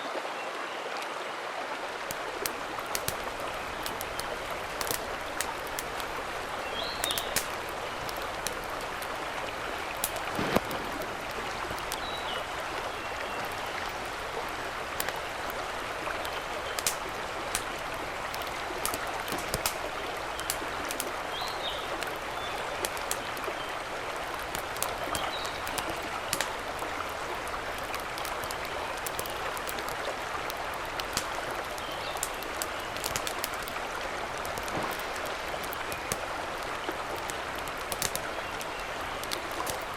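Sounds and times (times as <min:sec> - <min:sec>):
mountain stream rushing: 0:00.0 - 0:39.9
sharp ticks: 0:02.4 - 0:06.1.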